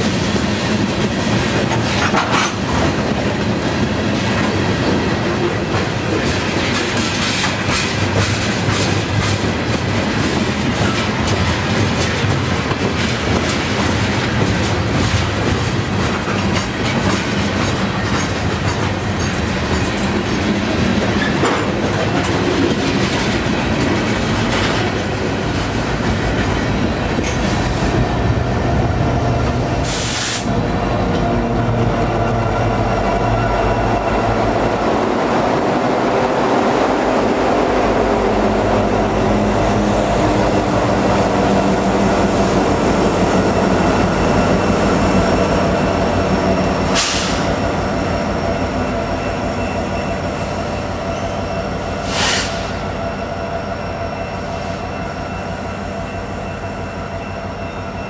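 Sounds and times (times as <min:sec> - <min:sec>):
train wheels clickety-clack: 0:00.0 - 0:53.3
brief high hiss: 0:29.9 - 0:30.5, 0:52.0 - 0:52.7.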